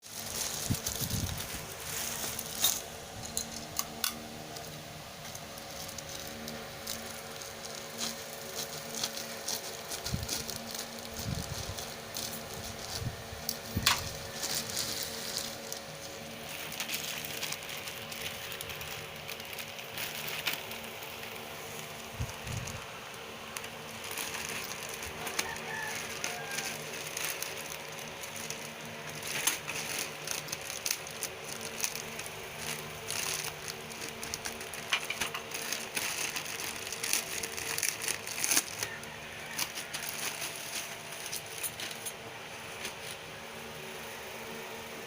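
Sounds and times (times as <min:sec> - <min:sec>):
plastic packaging crackling: 0:00.0 - 0:44.1
steady low hum: 0:00.0 - 0:45.0.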